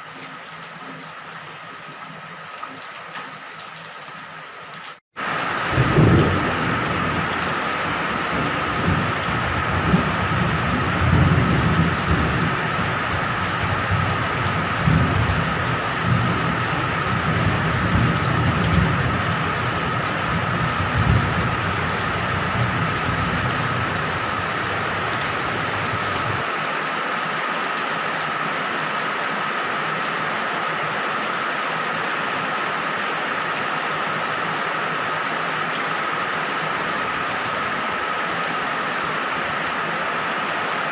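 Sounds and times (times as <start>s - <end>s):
steady rain falling: 5.2s - 40.9s
rolling thunder rumbling: 5.6s - 26.4s.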